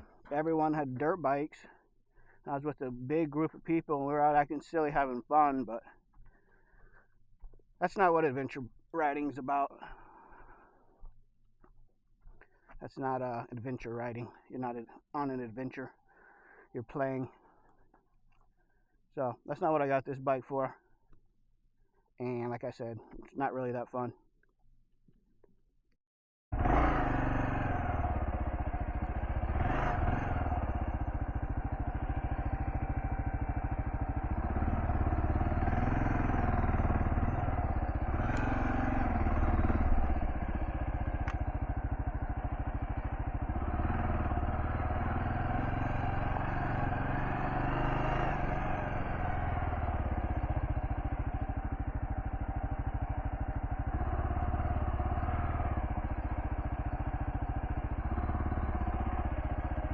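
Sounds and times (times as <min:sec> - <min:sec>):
motorcycle engine revving: 0:26.6 - 0:59.9
sharp ticks: 0:38.1 - 0:39.1, 0:40.6 - 0:42.1.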